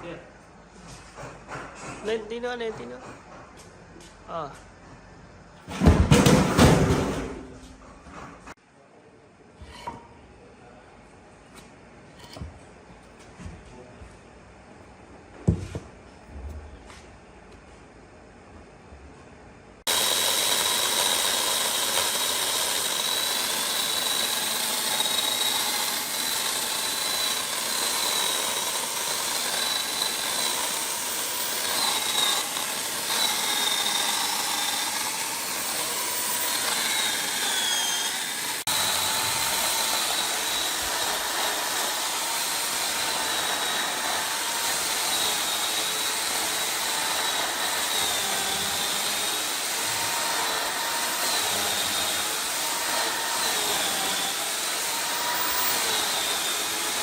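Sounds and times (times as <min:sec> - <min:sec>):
chainsaw running at high speed: 0:19.9 - 0:57.0.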